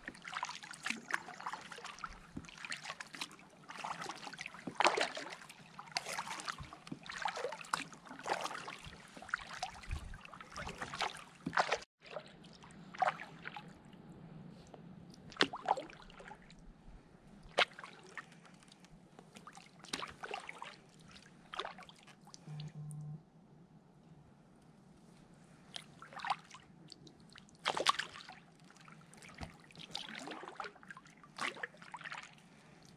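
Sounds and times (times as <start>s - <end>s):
paddle splashing in water: 0.0s - 13.7s, 15.3s - 16.4s, 19.4s - 22.0s, 27.6s - 32.4s.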